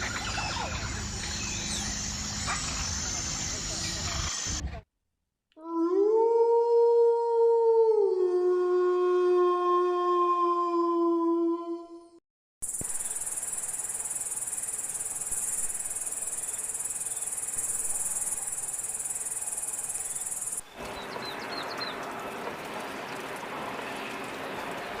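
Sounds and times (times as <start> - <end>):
high-pitched insect chorus: 12.6 - 20.6.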